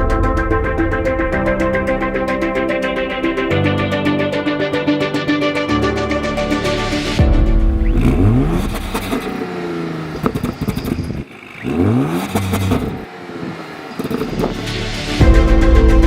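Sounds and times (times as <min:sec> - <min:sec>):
car engine revving: 0:07.5 - 0:15.2
sharp exhaust cracks: 0:07.8 - 0:14.9.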